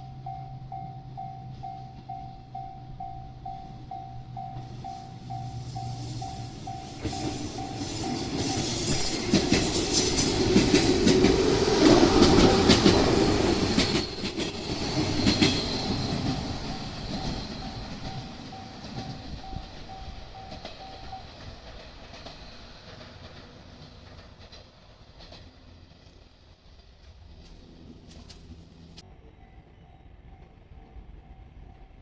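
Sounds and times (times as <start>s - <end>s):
crossing warning bell ringing: 0.0s - 21.8s
train wheels clacking: 1.7s - 26.1s.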